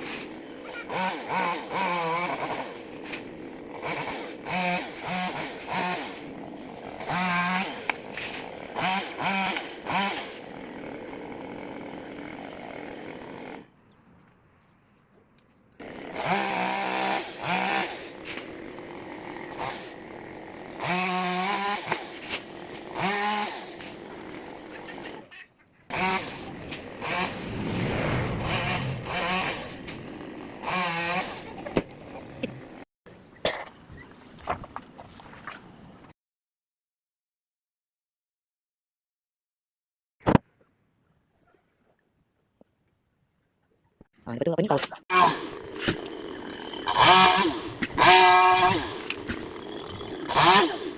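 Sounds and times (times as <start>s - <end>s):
chainsaw revving while cutting wood: 0.0s - 13.7s, 15.8s - 25.2s, 25.9s - 32.9s, 45.1s - 50.9s.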